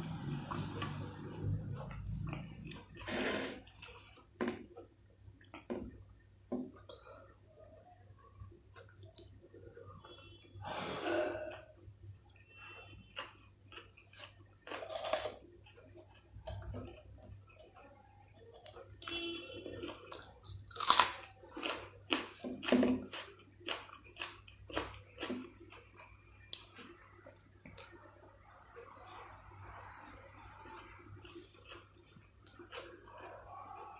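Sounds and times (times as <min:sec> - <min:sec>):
person chewing food: 0:00.1 - 0:06.0, 0:08.1 - 0:10.5, 0:11.5 - 0:33.9
crunchy bites: 0:20.7 - 0:25.3.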